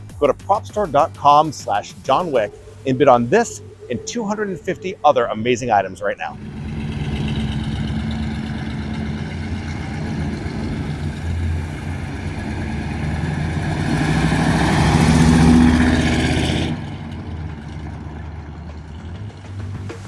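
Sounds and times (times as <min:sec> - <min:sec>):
car engine revving: 0:06.3 - 0:20.0.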